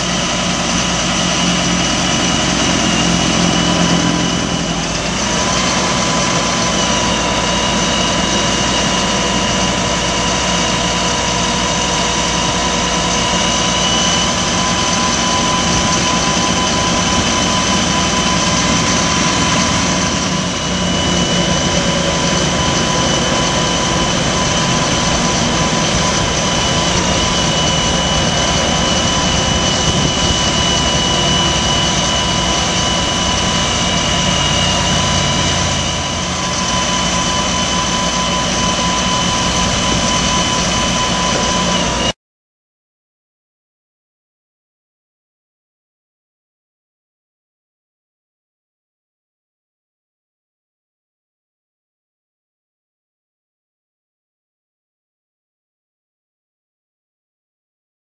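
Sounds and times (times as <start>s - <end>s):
diesel truck engine running: 0.0s - 42.1s
high whine: 0.0s - 42.2s.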